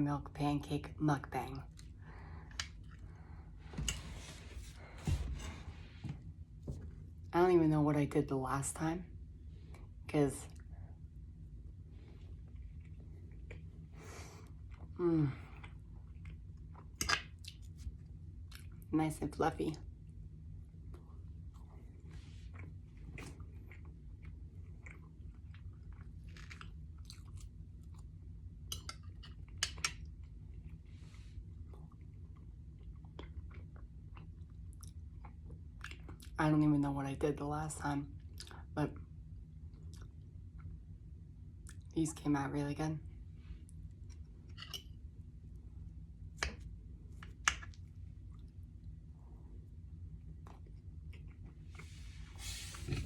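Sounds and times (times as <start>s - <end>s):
steady low hum: 0.0s - 53.0s
chewing and mouth clicks: 14.5s - 18.8s, 20.9s - 30.8s, 31.6s - 36.4s, 39.7s - 40.8s, 41.6s - 41.9s, 46.4s - 48.6s, 50.2s - 53.0s.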